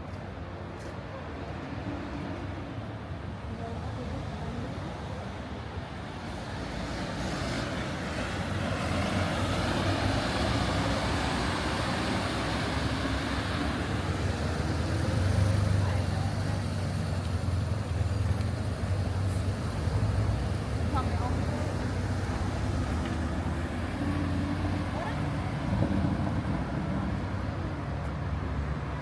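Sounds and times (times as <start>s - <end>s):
car engine and tyres: 6.1s - 29.0s.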